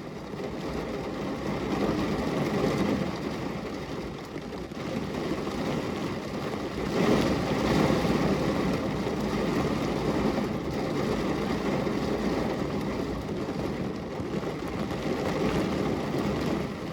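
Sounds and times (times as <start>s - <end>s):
heavy rain falling: 0.1s - 16.9s.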